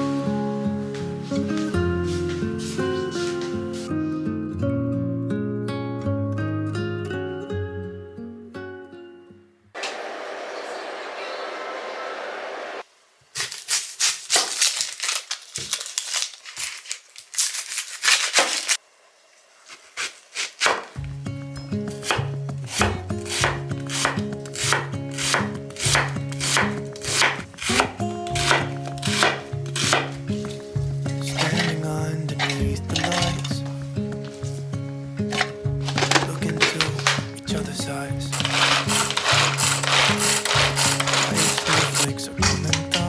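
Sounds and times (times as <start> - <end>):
background music: 0.0 - 8.9, 21.0 - 43.0
knife chopping on cutting board: 20.0 - 21.0, 21.9 - 30.7, 32.4 - 33.5, 38.4 - 42.8.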